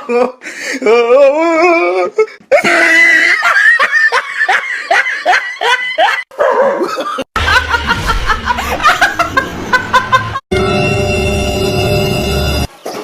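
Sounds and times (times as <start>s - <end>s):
person laughing: 0.0s - 6.2s, 6.8s - 10.4s
low rumble: 7.4s - 11.8s.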